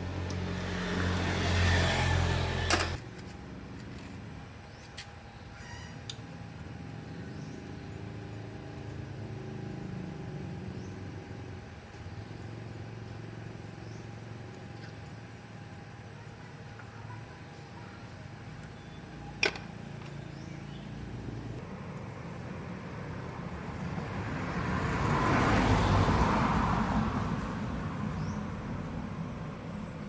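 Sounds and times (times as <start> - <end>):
vehicle passing by: 0.0 - 3.0, 20.6 - 30.0.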